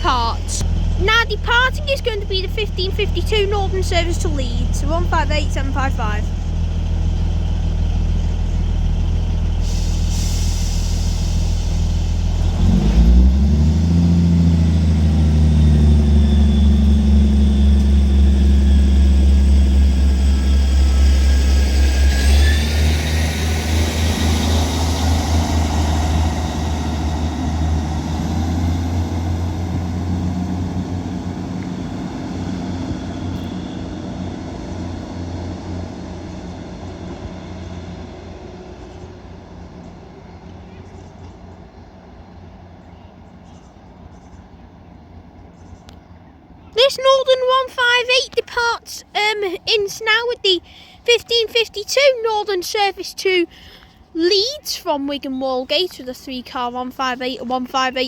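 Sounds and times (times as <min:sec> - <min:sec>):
diesel train engines pulling away: 0:00.0 - 0:58.0
high whine: 0:14.2 - 0:38.3.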